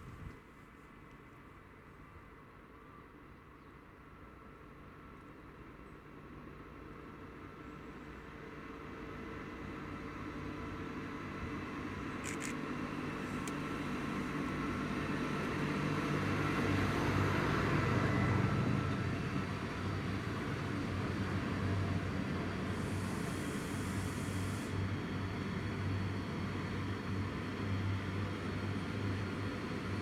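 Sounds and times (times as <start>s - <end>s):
high hiss: 22.6s - 24.8s.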